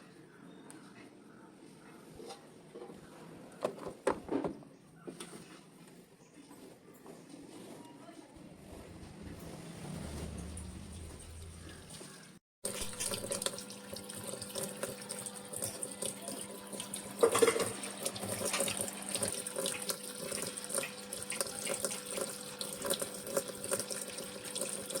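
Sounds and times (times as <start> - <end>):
water filling washing machine: 8.8 - 25.0.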